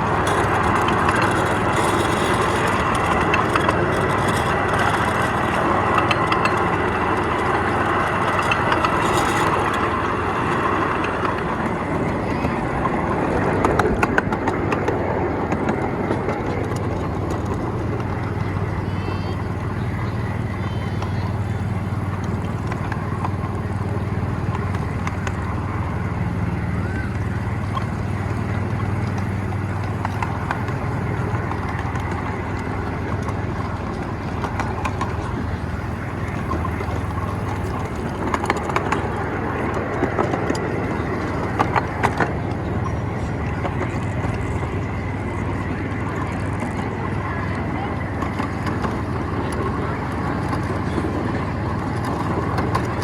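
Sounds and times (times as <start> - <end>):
miniature train rumbling: 0.0 - 53.0
train clicks and clacks: 0.0 - 53.0.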